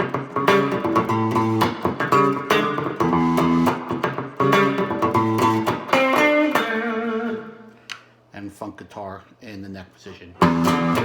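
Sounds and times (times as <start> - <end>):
electric guitar funk rhythm: 0.0 - 8.2, 10.4 - 11.0.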